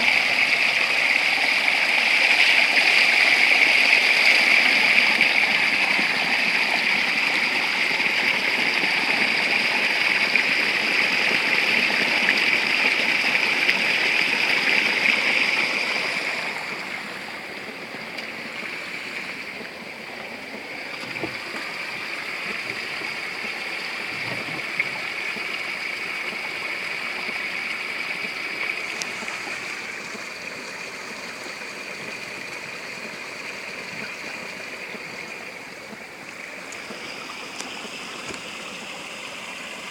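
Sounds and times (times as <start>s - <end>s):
spring water running and splashing: 0.0s - 39.9s.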